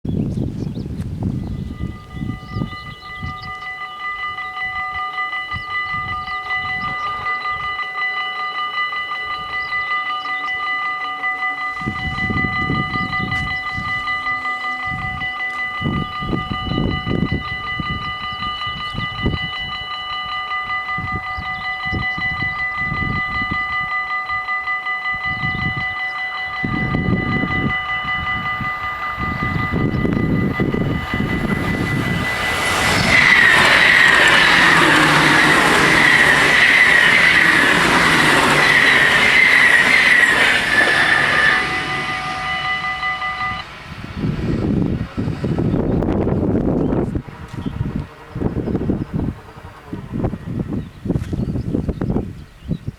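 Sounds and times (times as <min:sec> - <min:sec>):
level crossing warning bells: 0:01.1 - 0:52.9
steady rumbling: 0:26.6 - 0:52.1.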